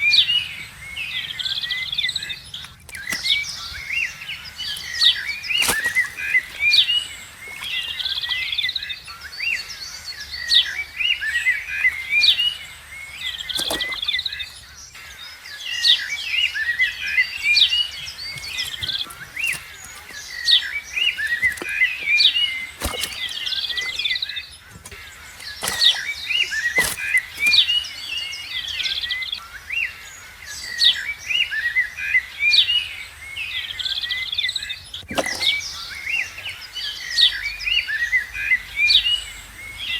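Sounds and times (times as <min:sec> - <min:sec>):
small birds chirping: 0:00.0 - 0:31.2.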